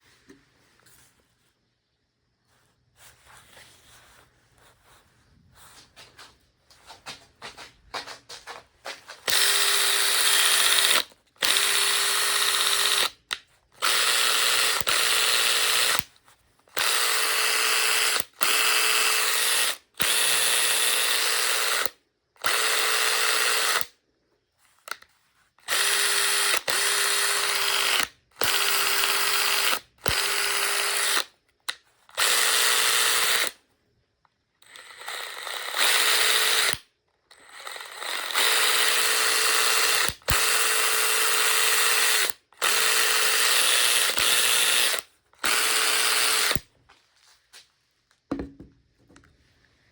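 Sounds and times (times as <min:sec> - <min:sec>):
impact driver whining and rattling: 0:09.2 - 0:16.0, 0:16.7 - 0:23.9, 0:25.6 - 0:31.3, 0:32.1 - 0:33.5, 0:34.6 - 0:46.7.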